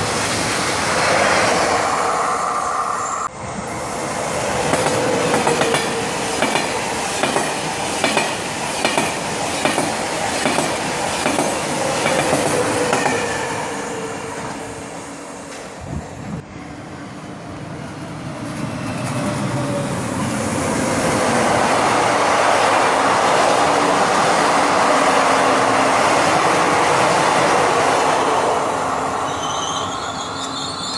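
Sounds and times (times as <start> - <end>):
train rushing past: 0.0 - 30.9
train wheels clattering: 4.7 - 13.8.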